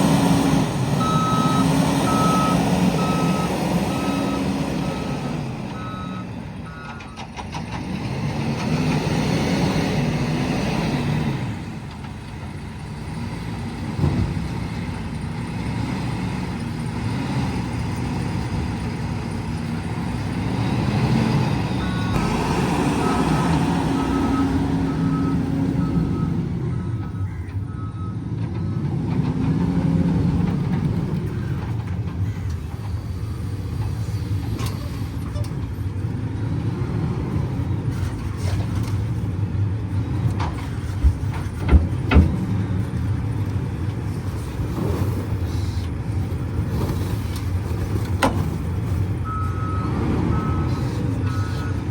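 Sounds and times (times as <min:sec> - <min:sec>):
diesel engine revving: 0:00.0 - 0:51.9
reversing alarm beeping: 0:01.0 - 0:07.2, 0:21.7 - 0:28.8.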